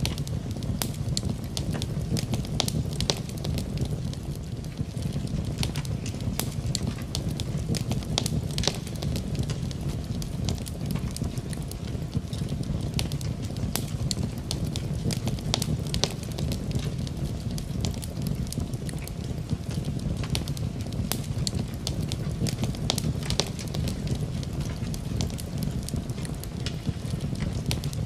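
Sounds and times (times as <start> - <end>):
rain pattering: 0.0 - 28.0
wood fire crackling: 0.0 - 28.0.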